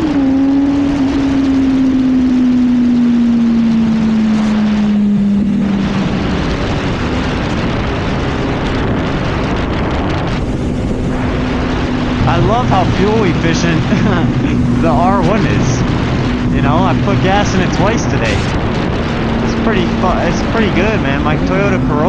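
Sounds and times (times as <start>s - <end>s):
motorcycle engine: 0.0s - 22.0s
wind noise on microphone: 0.0s - 22.0s.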